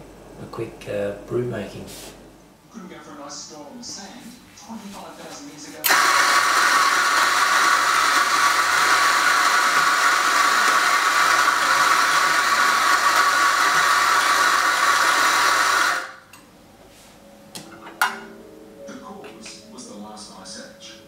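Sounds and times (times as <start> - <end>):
coffee machine hissing: 5.9 - 16.3.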